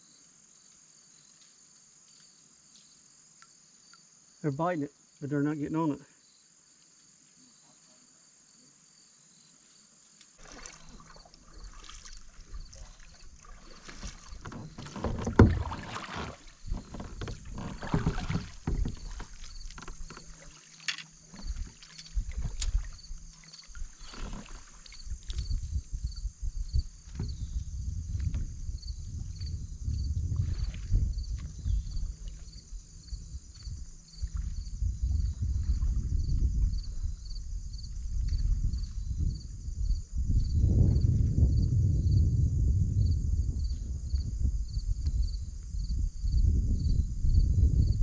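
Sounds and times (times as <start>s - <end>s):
insects chirring: 0.0s - 48.0s
kayak knocks and bumps: 10.4s - 26.0s, 26.7s - 37.0s.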